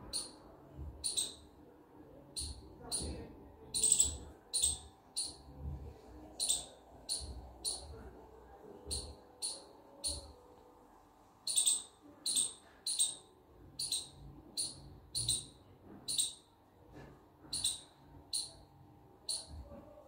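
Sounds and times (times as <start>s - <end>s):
bird chirping: 0.0s - 1.5s, 2.3s - 5.6s, 6.4s - 8.0s, 8.9s - 10.4s, 11.4s - 16.5s, 17.4s - 19.8s.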